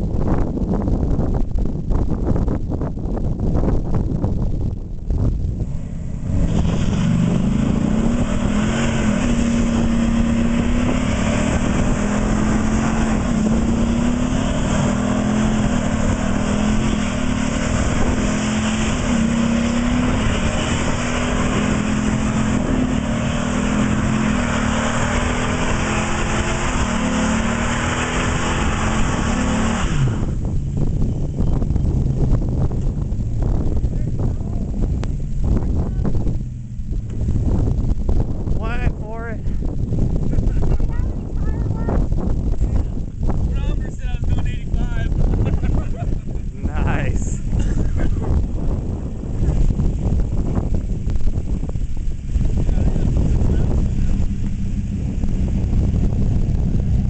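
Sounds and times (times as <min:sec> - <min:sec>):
engine at high revs: 0:05.6 - 0:30.5, 0:43.6 - 0:57.0.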